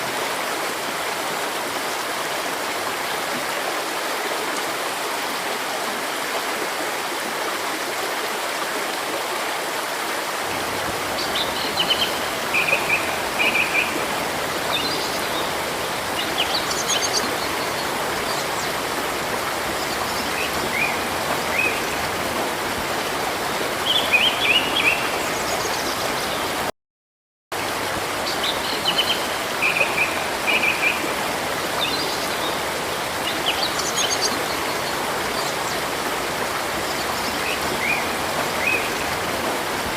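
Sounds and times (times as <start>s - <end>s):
river flowing: 0.0s - 26.7s, 27.6s - 39.9s
small birds chirping: 10.8s - 22.2s.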